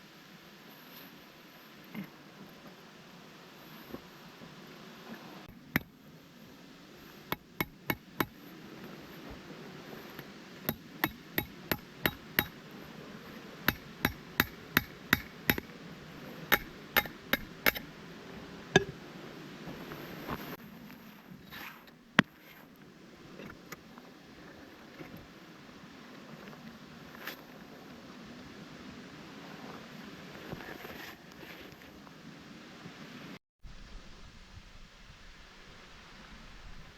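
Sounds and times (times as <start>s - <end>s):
hammer blows: 13.7s - 15.7s, 16.5s - 17.9s.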